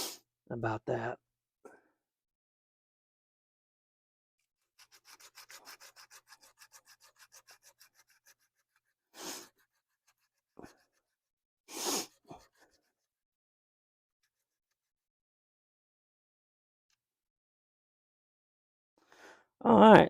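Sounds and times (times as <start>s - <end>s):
hand sanding rusty metal: 4.7s - 13.0s.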